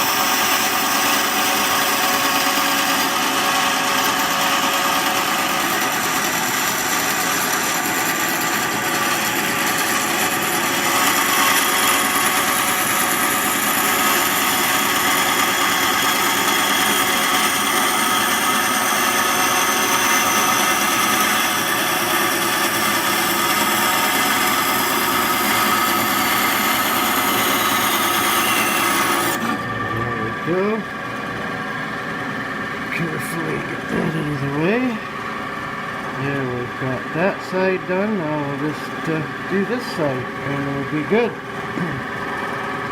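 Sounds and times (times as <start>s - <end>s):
bandsaw cutting wood: 0.0s - 30.9s, 33.0s - 35.2s.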